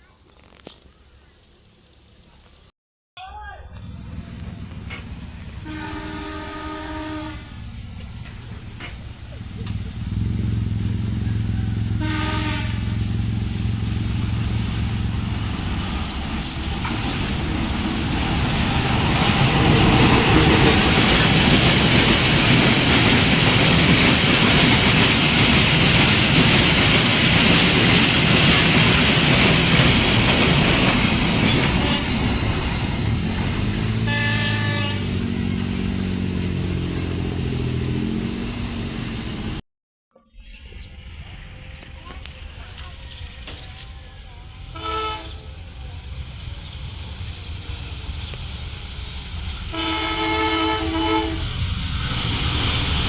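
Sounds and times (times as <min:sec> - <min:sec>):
train wheel and carriage noise: 0:03.4 - 0:39.6, 0:40.7 - 0:53.0
locomotive diesel engine: 0:03.7 - 0:39.6
train horn blast: 0:03.8 - 0:07.8, 0:10.9 - 0:14.0, 0:31.7 - 0:32.3, 0:33.8 - 0:35.6, 0:44.7 - 0:45.5, 0:49.7 - 0:51.5.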